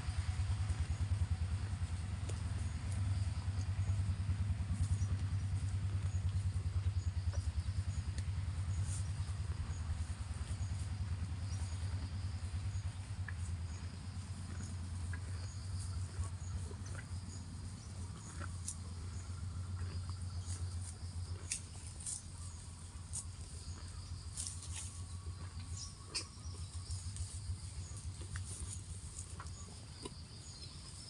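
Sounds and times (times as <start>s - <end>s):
cow tearing and chewing grass: 0.0s - 31.0s
insects chirping: 0.0s - 31.0s
steady low hum: 0.0s - 31.0s.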